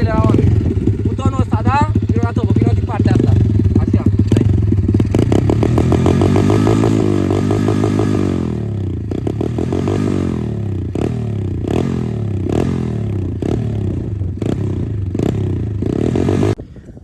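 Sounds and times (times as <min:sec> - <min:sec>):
faint regular ticking: 0:00.0 - 0:08.1
motorbike engine revving and idling: 0:00.0 - 0:16.7.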